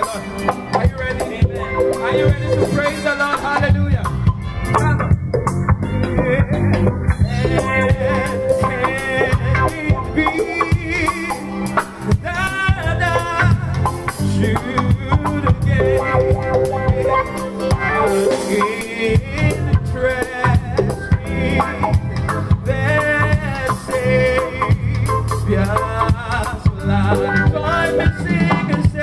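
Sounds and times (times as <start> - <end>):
voices singing: 0.0 - 4.0, 5.8 - 29.0
band playing up-tempo song: 0.0 - 29.0
busy percussion: 0.0 - 29.0.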